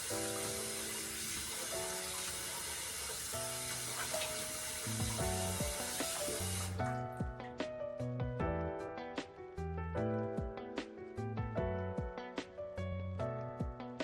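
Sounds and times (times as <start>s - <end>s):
tap running into sink: 0.0s - 6.8s
background music: 0.0s - 14.0s.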